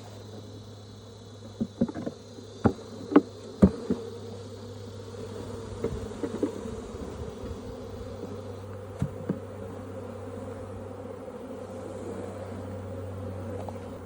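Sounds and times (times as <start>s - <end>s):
bees buzzing: 0.0s - 14.0s
sharp knocks on wooden frame: 9.0s - 9.4s.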